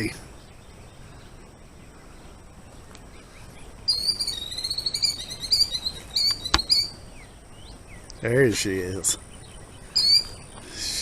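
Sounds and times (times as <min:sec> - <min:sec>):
bird trilling alarm call: 0:03.9 - 0:08.0, 0:09.3 - 0:11.0.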